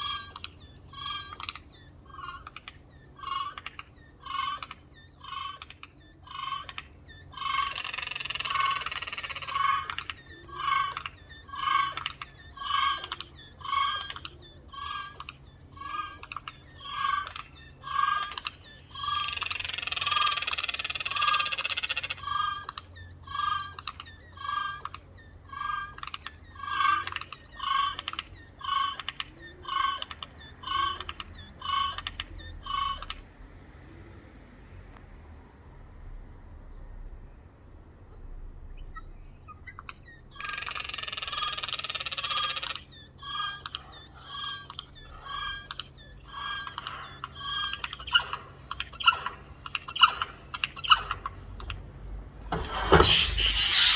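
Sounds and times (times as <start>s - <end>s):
jays calling: 0.0s - 33.3s, 38.2s - 53.9s.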